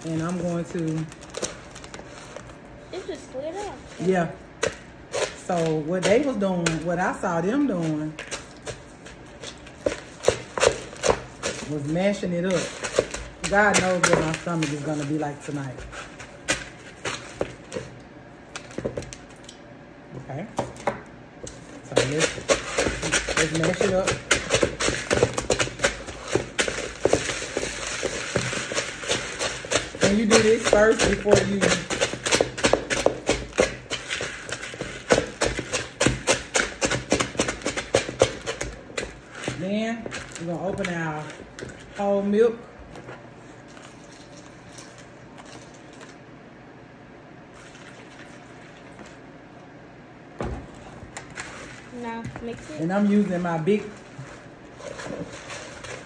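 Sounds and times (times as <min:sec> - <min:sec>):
crunching and crackling: 0:21.4 - 0:42.0.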